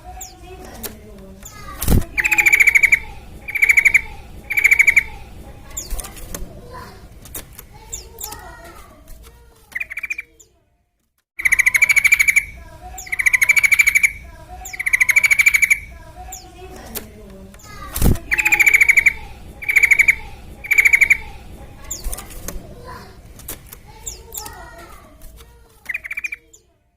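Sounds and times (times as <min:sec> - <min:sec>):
soft bird chirps: 0:00.1 - 0:06.4, 0:07.8 - 0:08.6, 0:09.7 - 0:10.6, 0:11.4 - 0:16.6, 0:17.6 - 0:22.5, 0:23.9 - 0:24.7, 0:25.8 - 0:26.8
bird rattling trill: 0:00.1 - 0:08.7, 0:09.8 - 0:10.4, 0:11.4 - 0:17.0, 0:17.6 - 0:25.0, 0:25.9 - 0:26.5.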